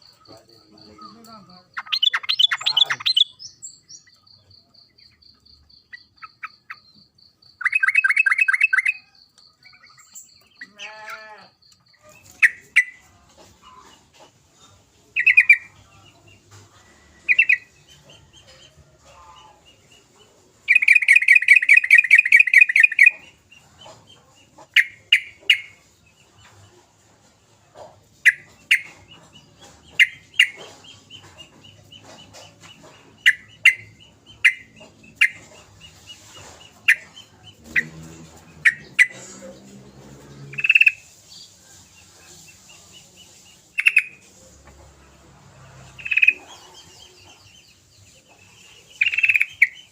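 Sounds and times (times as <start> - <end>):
bird chattering trill: 0.0 - 13.0, 15.2 - 15.7, 20.7 - 24.0, 28.2 - 39.4, 40.5 - 41.1, 43.7 - 44.2, 46.0 - 47.4, 48.4 - 49.9.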